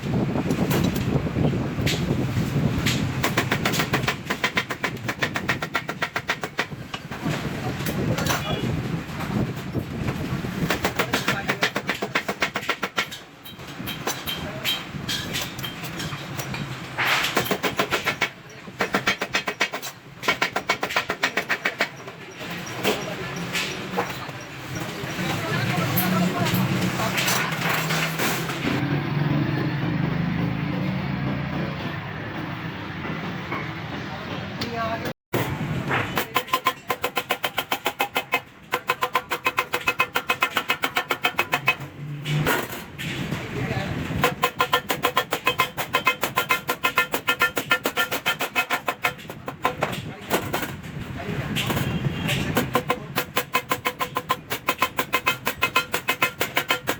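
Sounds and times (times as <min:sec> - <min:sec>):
hammer striking steel sheet: 0:35.4 - 0:43.4, 0:44.0 - 0:56.9.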